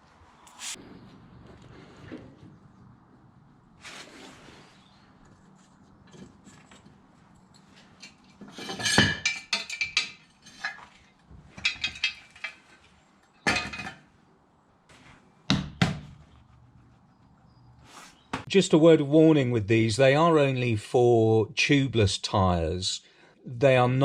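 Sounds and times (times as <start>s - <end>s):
metal tools clinking: 6.0s - 14.0s.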